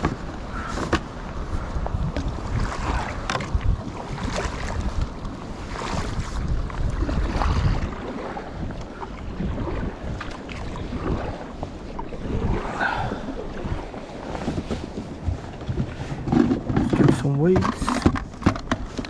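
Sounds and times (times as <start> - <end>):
fishing tackle clicks and knocks: 0.0 - 1.1, 3.2 - 3.6, 14.5 - 19.0
sea: 0.0 - 19.0
wind buffeting microphone: 0.0 - 19.0.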